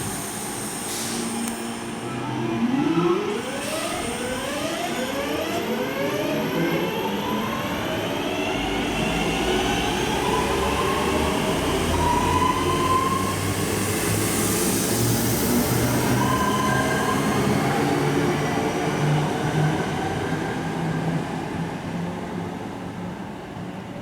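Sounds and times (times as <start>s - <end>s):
train hiss: 0.0s - 2.4s, 3.2s - 5.0s, 11.7s - 19.2s.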